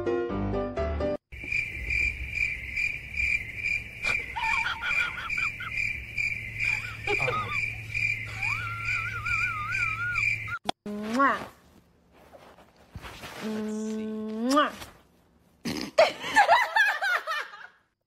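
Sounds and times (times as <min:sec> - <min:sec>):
cricket chirping: 0:01.3 - 0:10.6.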